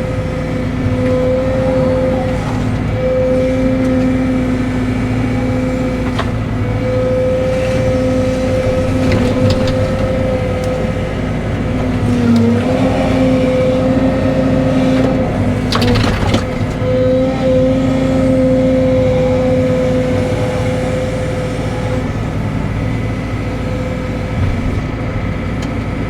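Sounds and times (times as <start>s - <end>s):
excavator diesel engine running: 0.0s - 26.0s
hydraulic whine: 0.0s - 26.0s.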